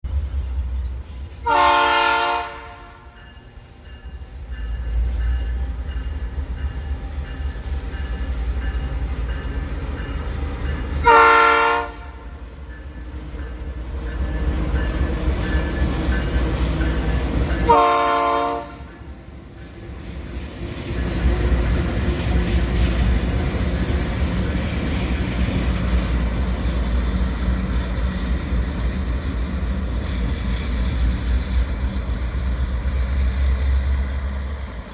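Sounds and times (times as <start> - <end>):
train rumbling: 0.0 - 34.9
locomotive horn blasts: 1.4 - 3.2, 11.0 - 12.4, 17.7 - 18.9.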